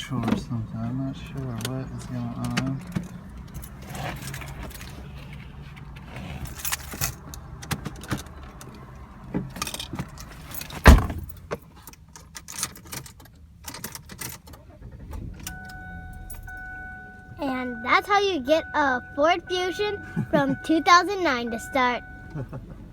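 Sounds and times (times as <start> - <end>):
loud thump: 10.8 - 11.4.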